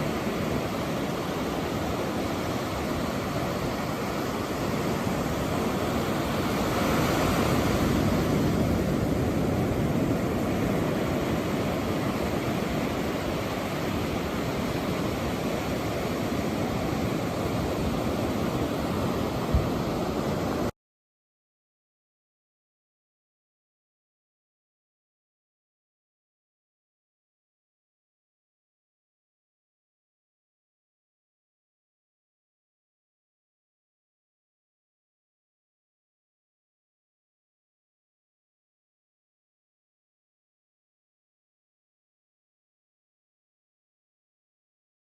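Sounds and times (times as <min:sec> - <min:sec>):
surf washing onto beach: 0:00.0 - 0:20.7
wind: 0:00.0 - 0:20.8.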